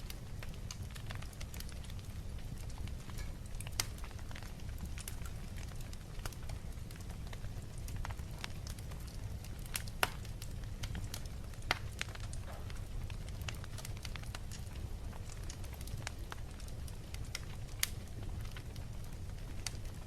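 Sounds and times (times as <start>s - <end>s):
fire crackling in a fireplace: 0.0s - 20.0s.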